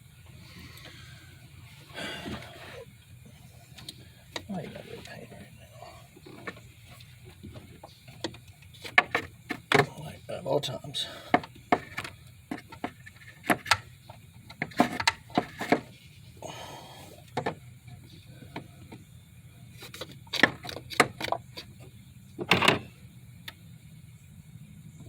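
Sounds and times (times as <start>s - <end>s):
steady low hum: 0.0s - 25.0s
car parts and tools clicking: 1.9s - 10.2s, 11.2s - 16.1s, 17.2s - 23.6s.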